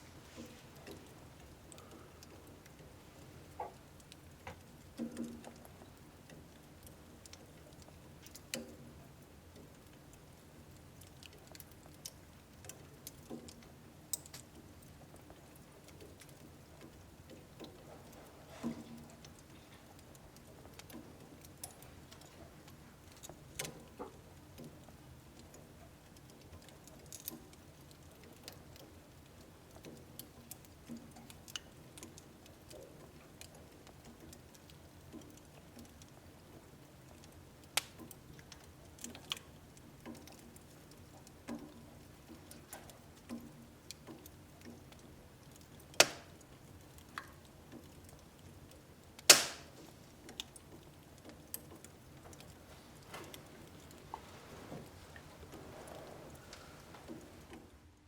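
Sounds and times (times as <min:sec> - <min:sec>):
wood fire crackling and popping: 0:00.0 - 0:58.0
sharp wood cracks: 0:45.9 - 0:46.4, 0:49.2 - 0:49.8.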